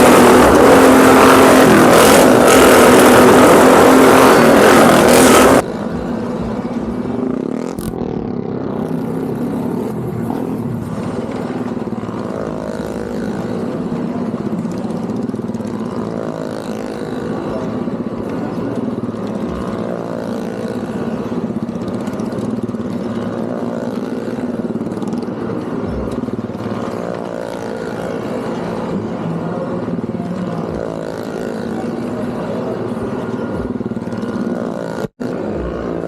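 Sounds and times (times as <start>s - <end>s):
engines droning: 0.0s - 36.0s.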